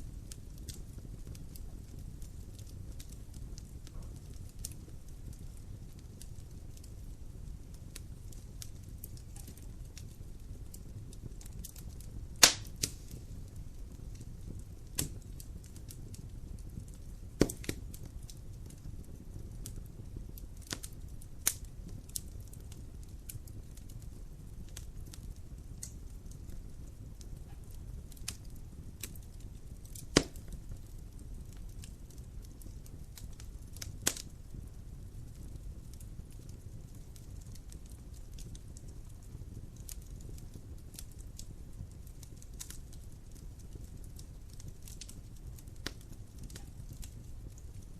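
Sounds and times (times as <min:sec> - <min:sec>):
wood fire crackling: 0:00.0 - 0:47.9
sharp loud fire pops: 0:12.4 - 0:13.2, 0:17.4 - 0:17.8, 0:30.2 - 0:30.4.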